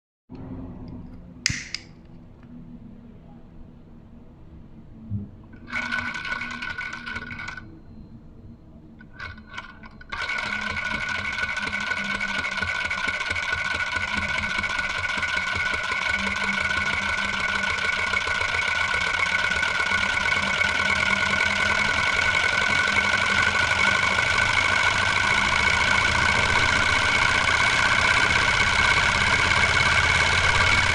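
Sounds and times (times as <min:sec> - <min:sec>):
model engine running with high tones: 0:09.1 - 0:30.9.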